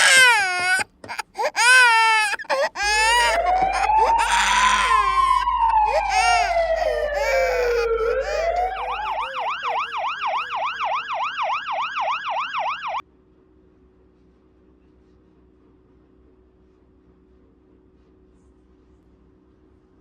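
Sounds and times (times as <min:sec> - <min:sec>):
electronic toy siren: 0:01.5 - 0:13.0.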